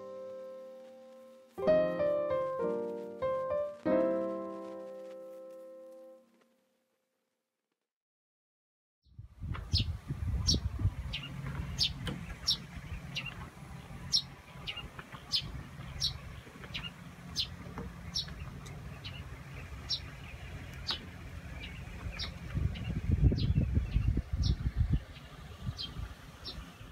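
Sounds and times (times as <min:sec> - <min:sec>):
bird chirping: 0:09.7 - 0:26.9.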